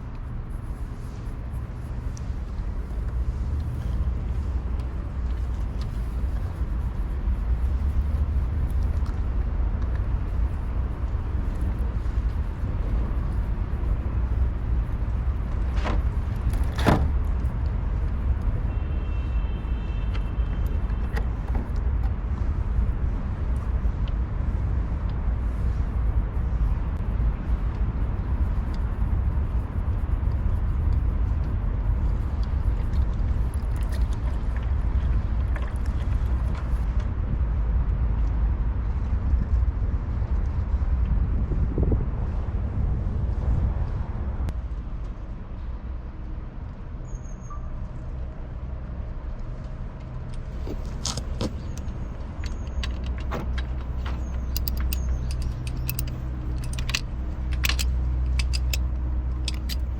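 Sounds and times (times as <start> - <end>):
vehicle engine rumbling: 0.0 - 59.9
sharp clicks: 50.7 - 59.9.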